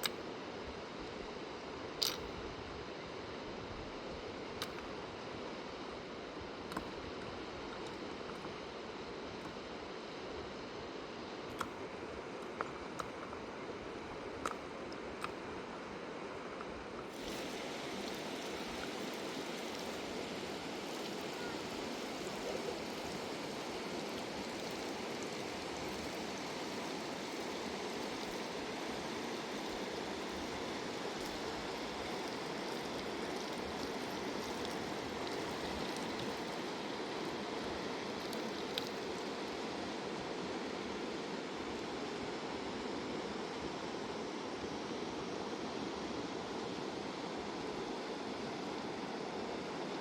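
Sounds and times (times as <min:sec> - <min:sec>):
river water rushing: 0:17.1 - 0:40.6.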